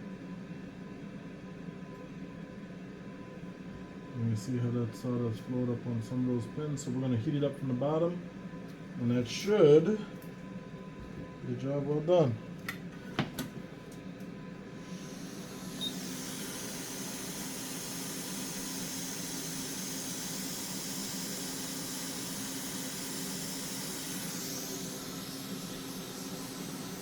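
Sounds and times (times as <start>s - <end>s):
hot air station hissing: 14.7s - 27.0s.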